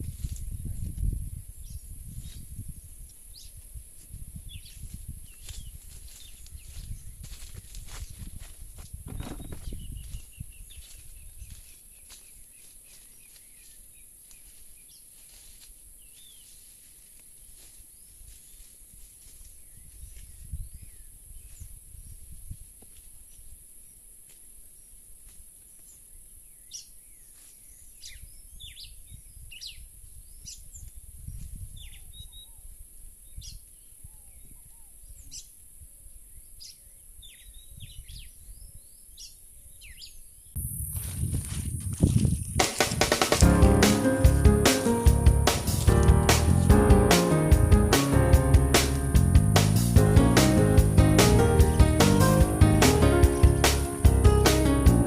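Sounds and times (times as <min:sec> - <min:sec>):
high-pitched hiss: 0:40.6 - 0:55.0
low rumbling noise: 0:43.4 - 0:55.0.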